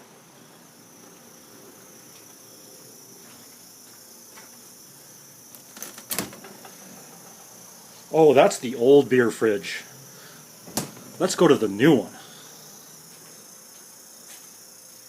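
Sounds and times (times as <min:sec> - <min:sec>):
insects chirring: 0:00.0 - 0:15.0
fridge door clicks and knock: 0:10.7 - 0:11.1.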